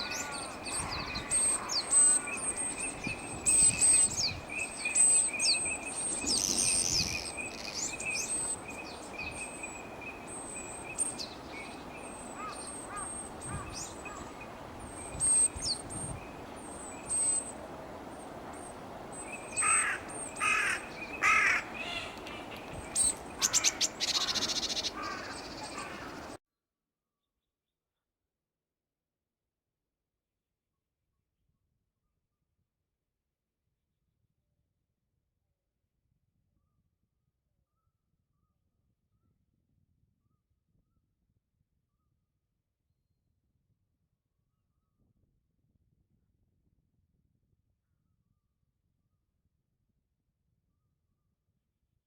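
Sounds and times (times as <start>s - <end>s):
harsh bird calls: 0.0s - 26.4s
high thin bird calls: 0.0s - 26.4s.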